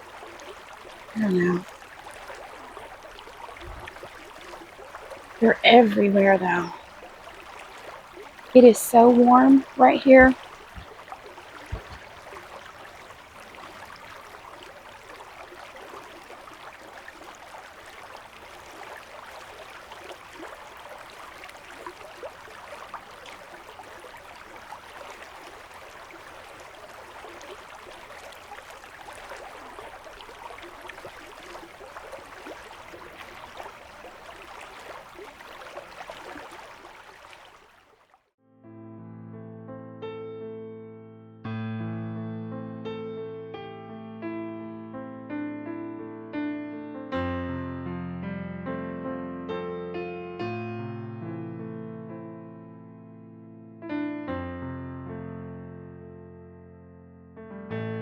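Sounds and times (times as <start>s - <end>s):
river water rushing: 0.0s - 37.9s.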